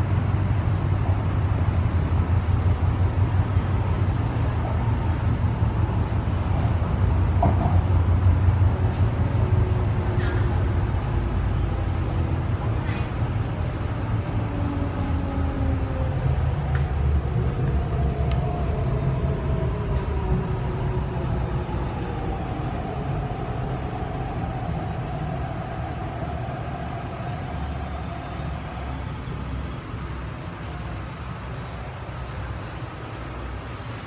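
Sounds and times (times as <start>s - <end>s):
traction motor whine: 0.0s - 33.6s
train wheels rumbling on track: 0.0s - 34.0s.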